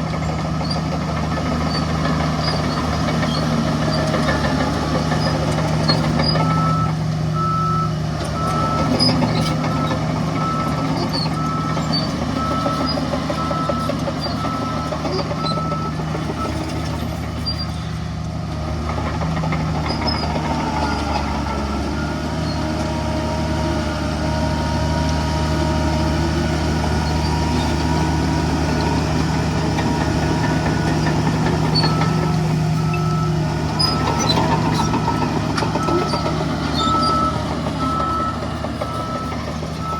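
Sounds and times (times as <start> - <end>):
diesel engine running: 0.0 - 39.9
reversing alarm beeping: 5.9 - 16.6, 20.6 - 22.6, 29.9 - 39.9.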